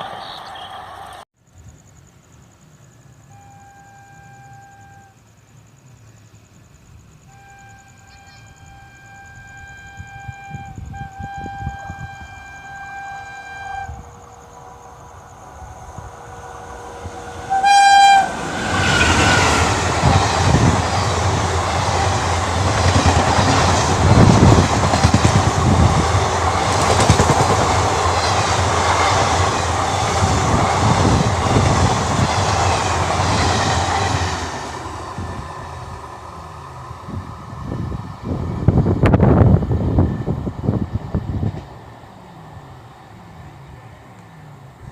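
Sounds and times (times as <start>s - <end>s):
train passing with rumble: 0.0s - 44.9s
locomotive horn: 3.2s - 5.2s, 7.3s - 15.0s, 15.8s - 20.3s.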